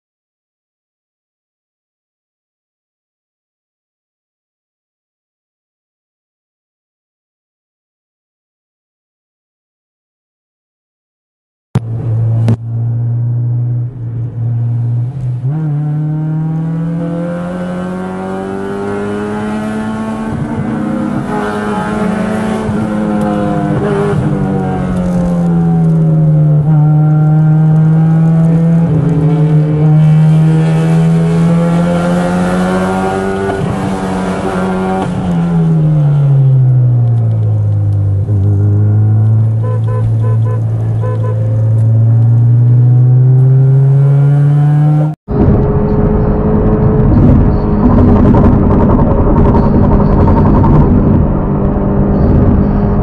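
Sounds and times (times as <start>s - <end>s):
car engine revving uphill: 11.8s - 53.0s.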